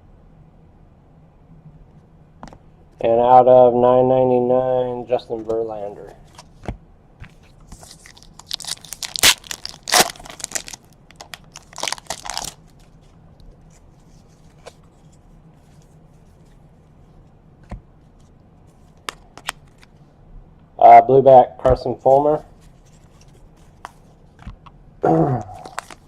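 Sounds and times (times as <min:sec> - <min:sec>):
wrapper tearing and crinkling: 0:07.8 - 0:12.8, 0:25.6 - 0:26.0.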